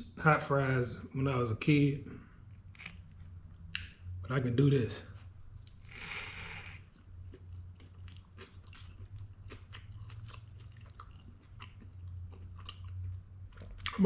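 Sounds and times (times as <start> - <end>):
steady low hum: 0.0 - 14.0
person chewing crunchy food: 5.6 - 14.0.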